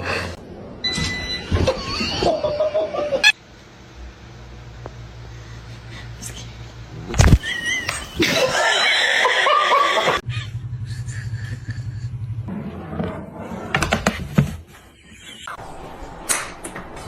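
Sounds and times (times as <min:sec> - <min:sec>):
person laughing: 0:01.7 - 0:03.4, 0:07.3 - 0:12.4.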